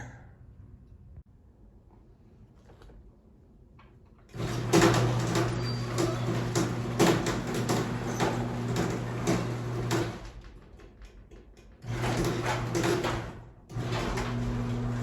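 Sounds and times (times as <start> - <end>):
garage door opener motor humming: 4.3 - 15.0
door knocking and rattling: 4.4 - 14.7.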